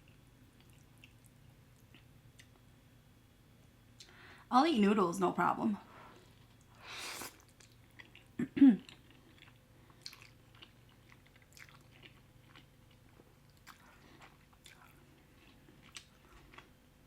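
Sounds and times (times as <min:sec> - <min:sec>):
chewing with wet mouth clicks: 0:00.6 - 0:02.6, 0:07.3 - 0:16.7.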